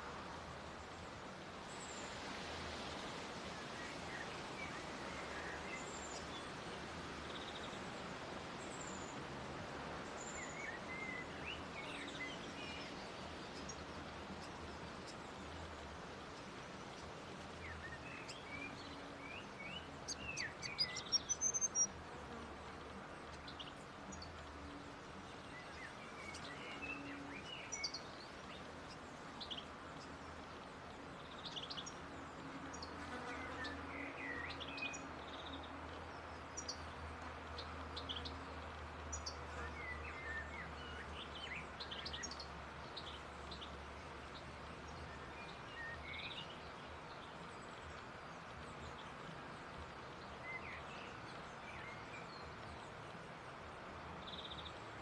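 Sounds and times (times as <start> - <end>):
bird chirping and twittering: 17.7 - 21.9, 25.4 - 30.1.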